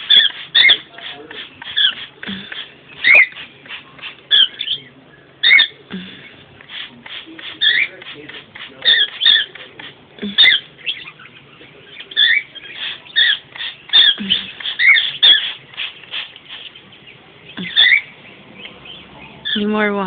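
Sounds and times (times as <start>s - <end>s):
birds chirping and squawking: 0.0s - 20.0s.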